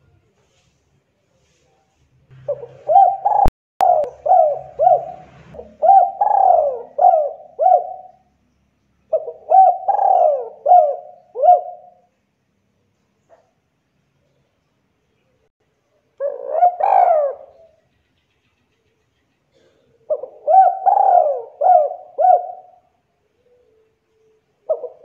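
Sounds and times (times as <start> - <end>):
dove cooing: 2.4 - 8.3, 9.1 - 12.1, 16.2 - 17.8, 19.5 - 23.8, 24.6 - 25.0.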